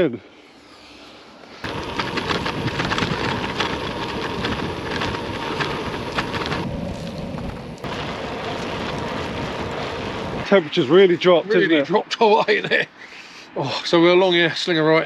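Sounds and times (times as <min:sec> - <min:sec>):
bike tyre and wind noise: 0:00.0 - 0:12.5
bike rattling and knocking: 0:01.6 - 0:10.2.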